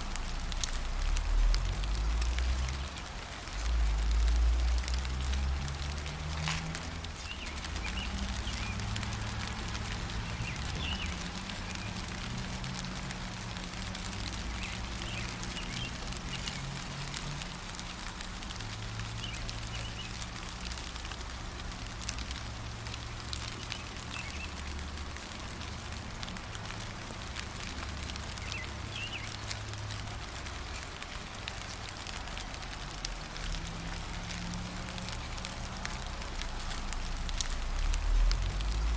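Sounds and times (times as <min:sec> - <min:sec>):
gentle rain falling: 0:00.0 - 0:38.9
bird chirps: 0:28.4 - 0:29.4.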